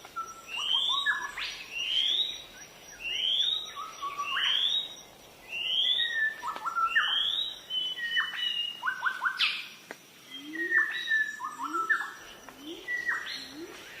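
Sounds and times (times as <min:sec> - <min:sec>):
low bird chirps: 0:10.3 - 0:14.0.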